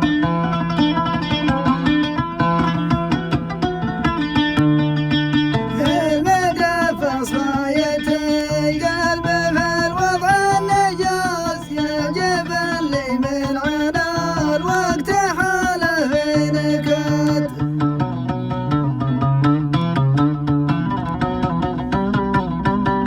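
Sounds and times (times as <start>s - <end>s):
plucked strings: 0.0s - 23.0s
man singing ornamented melody: 5.7s - 17.7s.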